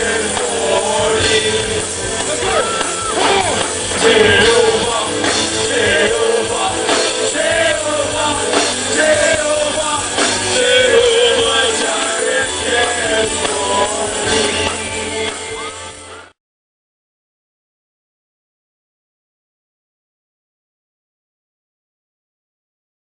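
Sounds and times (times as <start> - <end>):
person singing: 0.0 - 16.3
live band playing: 0.0 - 16.4.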